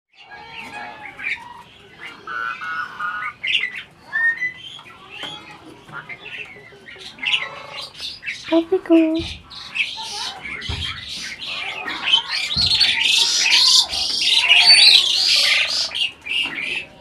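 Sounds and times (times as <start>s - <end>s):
starling chattering: 6.2s - 17.0s.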